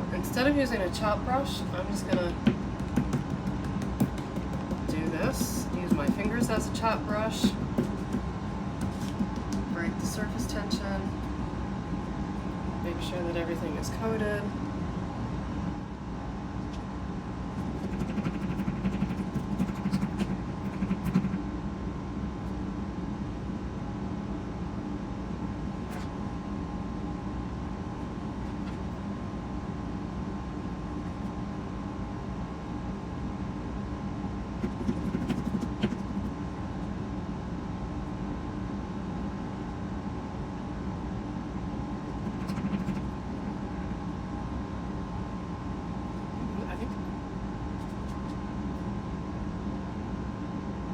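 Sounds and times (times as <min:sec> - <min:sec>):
steady machine hum: 0:00.0 - 0:50.9
soft handling noises: 0:07.4 - 0:10.0.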